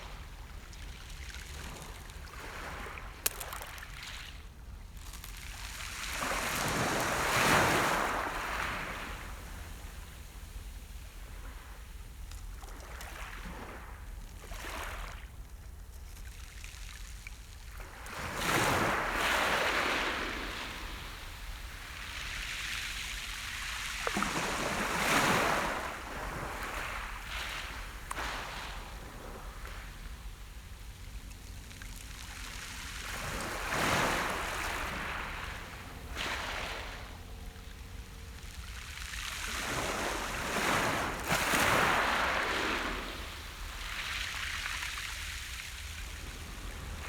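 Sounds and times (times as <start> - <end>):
waves breaking on beach: 0.0 - 11.9, 17.8 - 47.0.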